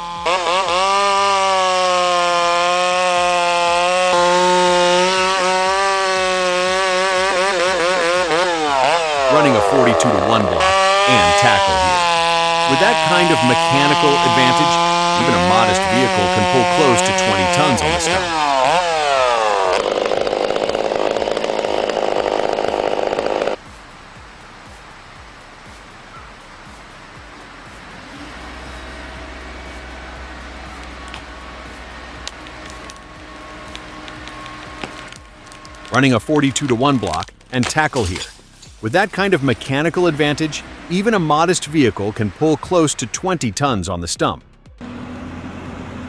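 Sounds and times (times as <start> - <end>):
chainsaw cutting wood: 0.0 - 23.9, 26.6 - 43.0
faint steady hiss: 21.8 - 42.8.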